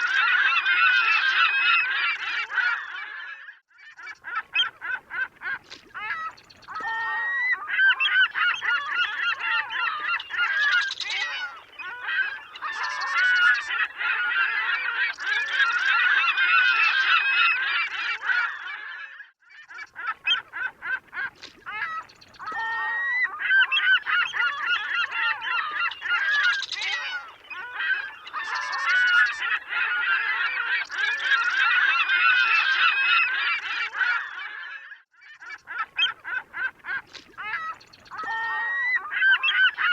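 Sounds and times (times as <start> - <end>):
seagulls calling: 0.0 - 39.9.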